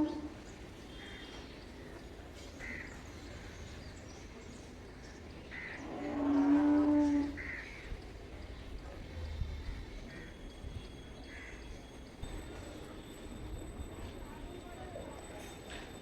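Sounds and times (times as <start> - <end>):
cow mooing: 0.0 - 0.3, 5.8 - 7.5.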